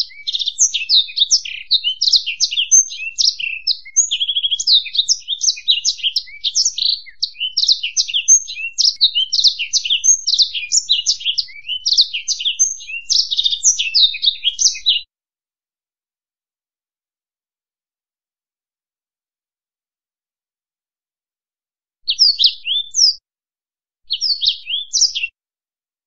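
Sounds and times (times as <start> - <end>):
songbird singing trills: 0.0 - 15.0, 22.1 - 23.2, 24.1 - 25.3.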